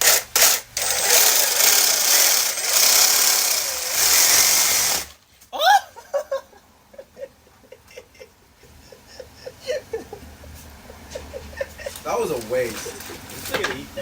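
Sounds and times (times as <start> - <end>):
reciprocating saw cutting: 0.0 - 5.2.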